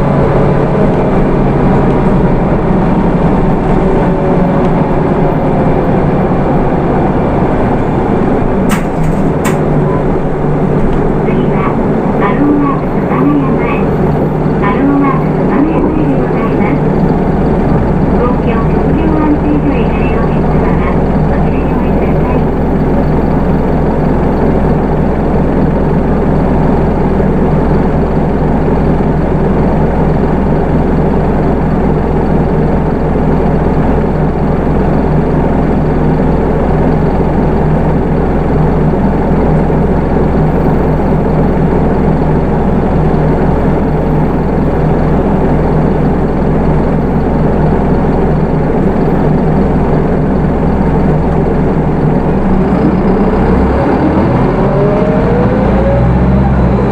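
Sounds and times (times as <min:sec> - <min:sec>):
bus diesel engine running: 0:00.0 - 0:56.9.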